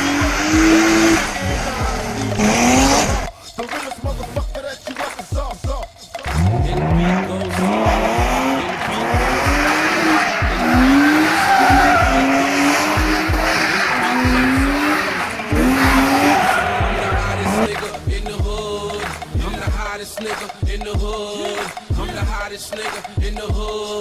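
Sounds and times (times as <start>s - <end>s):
car engine revving: 0.0s - 3.3s, 6.2s - 18.0s
tyres squealing and skidding: 0.0s - 3.3s, 6.3s - 17.7s
hip-hop music with bass beat: 0.0s - 24.0s.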